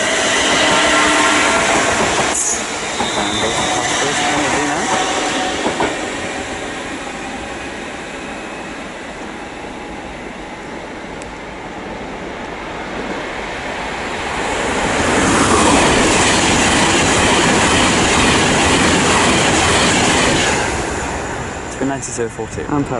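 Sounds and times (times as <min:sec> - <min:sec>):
train wheel squeals: 0:00.0 - 0:07.4
electric train running: 0:00.0 - 0:11.6, 0:14.4 - 0:22.1.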